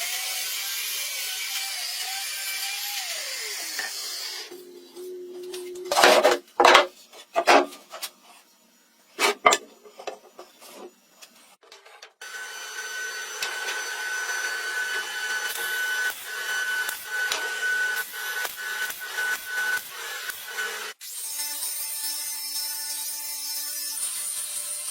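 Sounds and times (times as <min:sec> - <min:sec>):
tool scraping wood: 0:03.7 - 0:08.5, 0:09.2 - 0:12.2.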